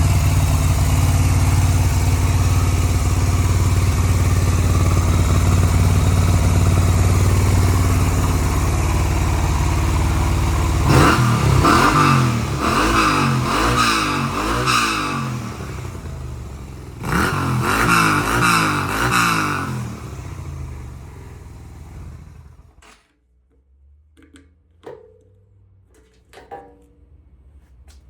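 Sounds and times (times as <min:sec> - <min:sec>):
motorcycle engine revving: 0:00.0 - 0:22.8.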